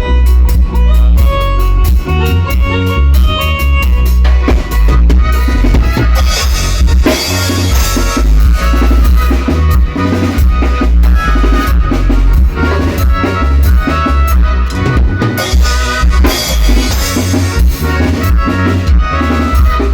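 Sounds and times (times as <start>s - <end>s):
drum kit beat: 0.0s - 19.9s
heavy bass line: 0.0s - 19.9s
held melodic notes: 0.0s - 19.9s.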